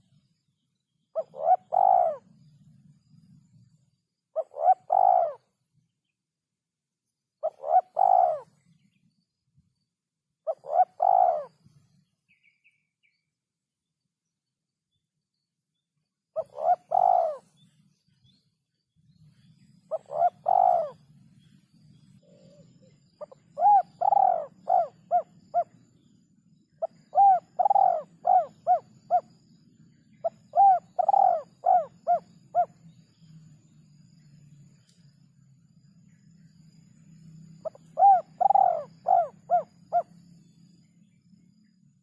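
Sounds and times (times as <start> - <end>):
faint low hum: 0.0 - 42.0
dove cooing: 1.2 - 2.4, 4.4 - 5.5, 7.4 - 8.6, 10.5 - 11.6, 16.4 - 17.6, 19.9 - 21.1, 22.2 - 25.9, 26.8 - 29.4, 30.2 - 32.8, 37.6 - 40.2.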